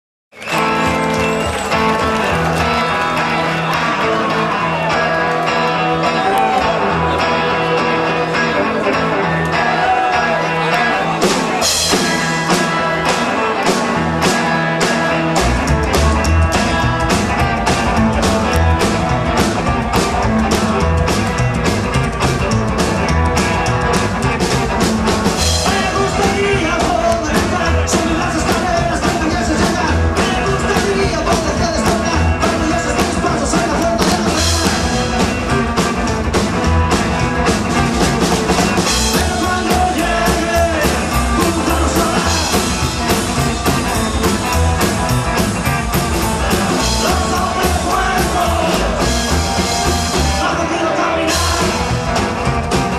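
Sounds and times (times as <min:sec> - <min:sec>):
rock band playing: 0:00.3 - 0:52.9
steady drum beat: 0:09.6 - 0:52.9
person singing: 0:25.4 - 0:35.6, 0:38.9 - 0:44.6, 0:46.2 - 0:52.5.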